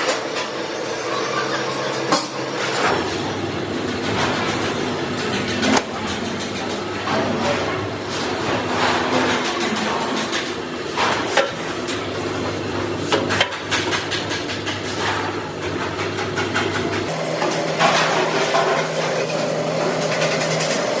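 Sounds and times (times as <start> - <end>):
machine hum: 14.4 - 21.0.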